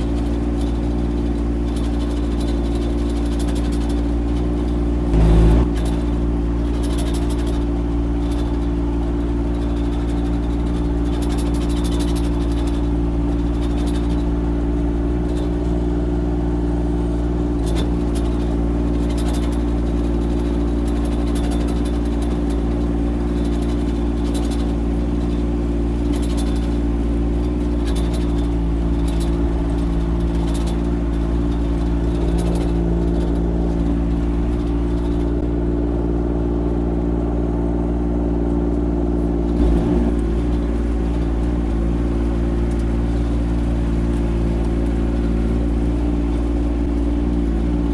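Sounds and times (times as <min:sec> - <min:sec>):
light clicks and clatter: 0:00.0 - 0:05.2, 0:05.8 - 0:47.9
diesel engine running: 0:00.0 - 0:47.9.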